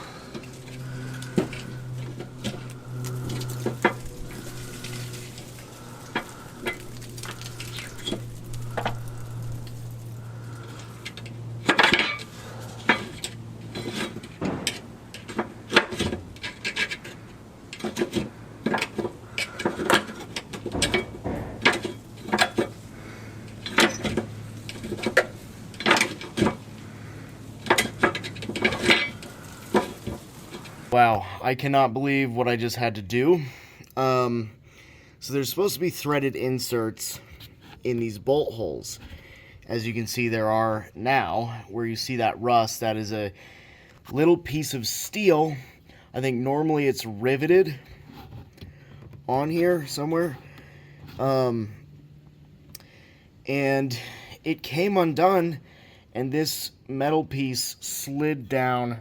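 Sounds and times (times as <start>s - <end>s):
metal parts and tools clinking: 10.8s - 22.8s, 23.5s - 26.6s, 27.6s - 30.7s.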